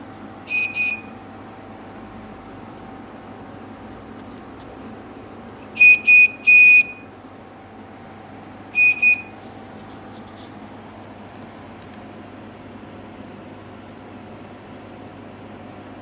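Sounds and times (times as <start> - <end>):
mechanical bird whistle: 0.5 - 1.1, 5.8 - 7.0, 8.8 - 9.4.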